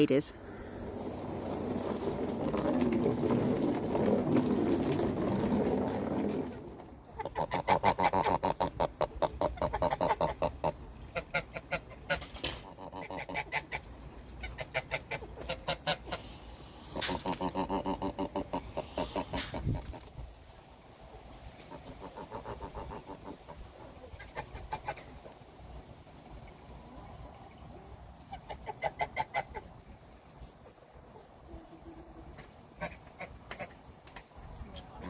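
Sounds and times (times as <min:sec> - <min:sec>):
chickens clucking: 0:00.0 - 0:35.0
rustling noise: 0:00.7 - 0:07.0, 0:14.1 - 0:21.9.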